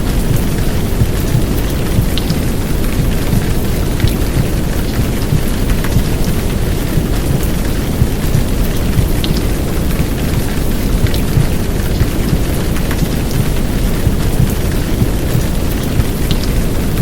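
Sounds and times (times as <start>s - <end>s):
heavy rain hissing: 0.0s - 17.0s
muffled whooshing womb sound: 0.0s - 17.0s
rain drop ticks: 0.0s - 17.0s.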